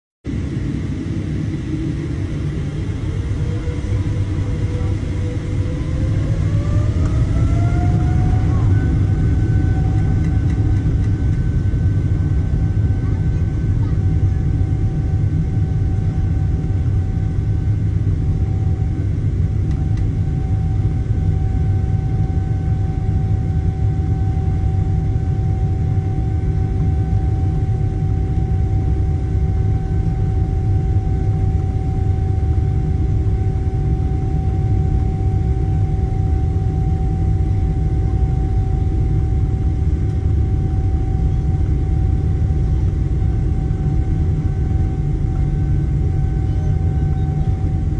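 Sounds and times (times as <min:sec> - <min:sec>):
constant whine: 0:00.3 - 0:47.9
vehicle engine rumble: 0:00.4 - 0:23.0.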